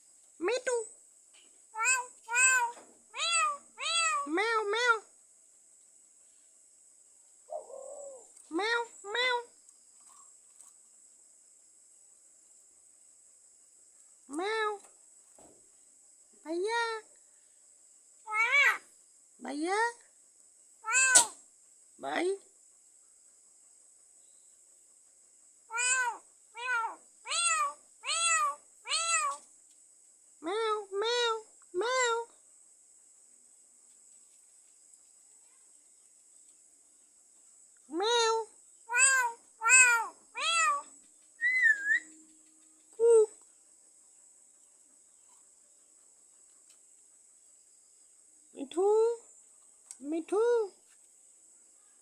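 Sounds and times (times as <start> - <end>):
myna bird mimicking meows: 1.8 - 4.6, 18.3 - 18.8, 20.8 - 21.4, 25.7 - 29.4, 38.9 - 42.1.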